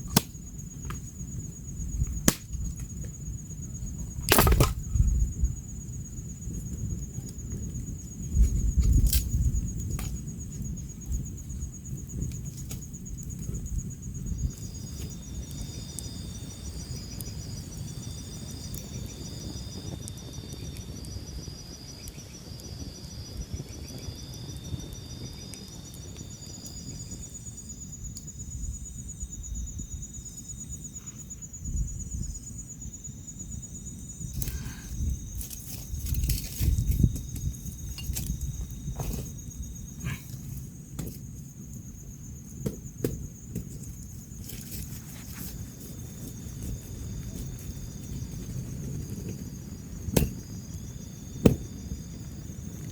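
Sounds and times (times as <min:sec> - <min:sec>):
insect chirping pulses: 0:00.0 - 0:52.9
insect high trill: 0:14.1 - 0:52.9.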